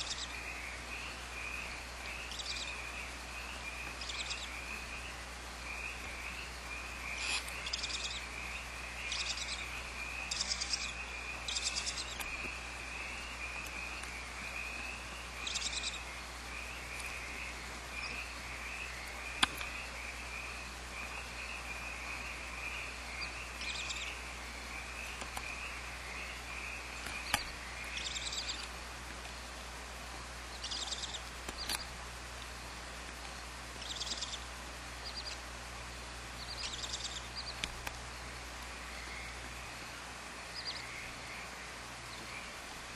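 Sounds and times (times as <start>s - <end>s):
owls hissing: 6.9s - 13.4s
sharp clicks: 31.5s - 31.8s.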